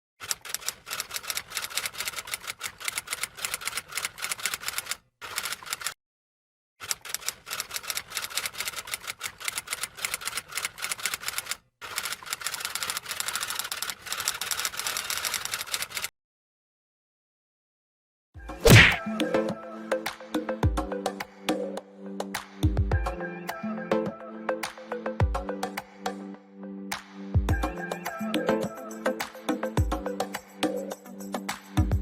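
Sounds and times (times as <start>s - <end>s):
typewriter keys clacking: 0.2s - 6.0s, 6.8s - 16.1s.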